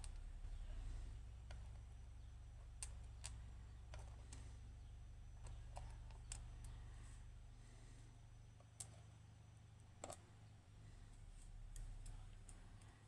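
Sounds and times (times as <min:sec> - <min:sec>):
low steady hum: 0:00.0 - 0:13.0
small clicks of lock parts: 0:02.8 - 0:04.5, 0:05.4 - 0:06.8, 0:08.6 - 0:09.1, 0:09.8 - 0:10.5, 0:11.4 - 0:13.0.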